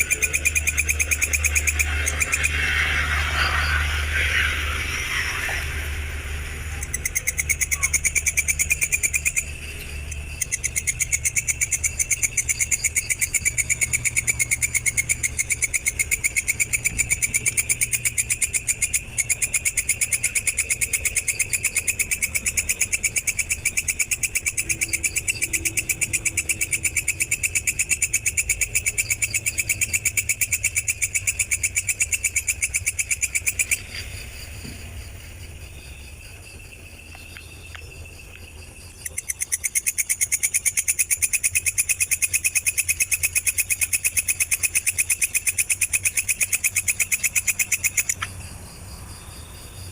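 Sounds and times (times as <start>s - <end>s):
faint insect trill: 0.0s - 49.9s
insect trilling: 0.0s - 49.9s.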